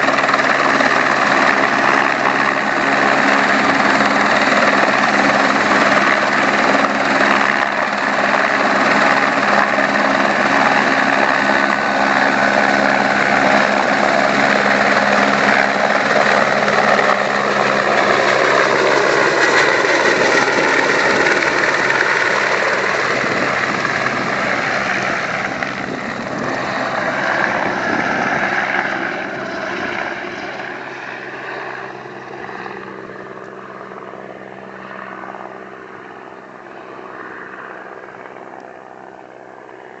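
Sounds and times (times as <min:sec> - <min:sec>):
helicopter rotor and turbine: 0:00.0 - 0:40.0.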